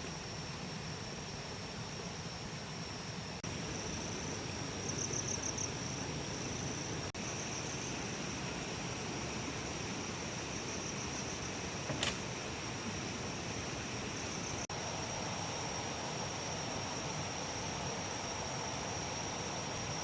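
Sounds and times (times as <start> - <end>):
insects singing: 0.0 - 20.0
sharp click: 11.9 - 12.3.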